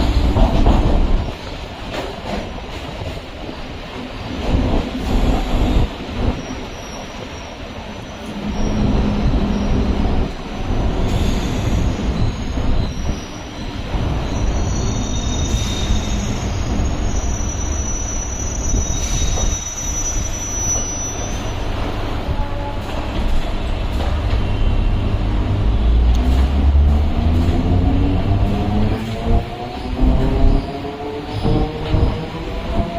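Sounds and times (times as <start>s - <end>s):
electric train rumbling on track: 0.0s - 32.9s
train wheels squealing: 5.0s - 23.4s, 29.1s - 32.9s.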